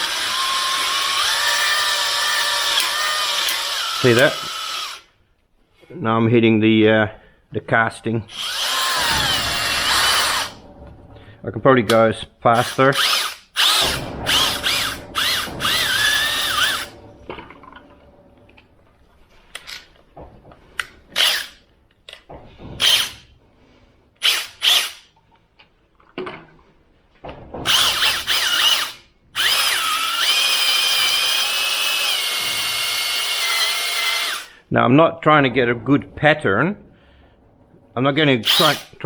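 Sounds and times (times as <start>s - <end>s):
electric drill honing whine: 0.0s - 5.1s, 8.3s - 10.6s, 12.6s - 16.9s, 27.7s - 34.5s, 38.4s - 39.0s.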